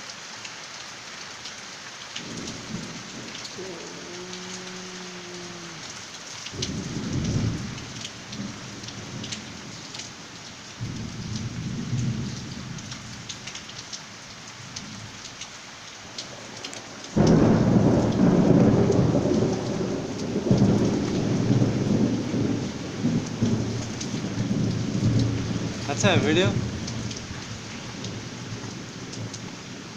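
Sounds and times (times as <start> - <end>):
heavy rain falling: 0.0 - 29.9
raindrops tapping close by: 0.0 - 29.9
deep thunder rumbles: 6.5 - 9.4, 17.2 - 29.9.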